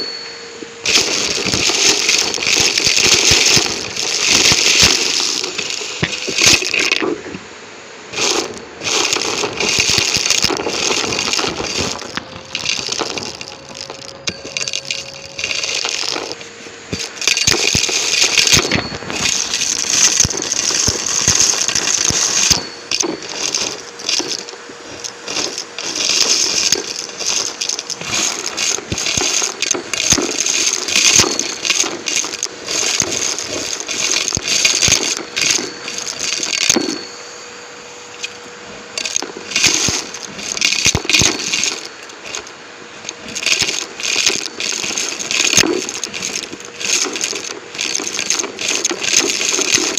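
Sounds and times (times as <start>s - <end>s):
debris crackling and rattling: 0.0s - 7.4s, 8.1s - 49.9s
faint motor tone: 0.0s - 49.9s
vacuum cleaner sucking up debris: 0.0s - 49.9s.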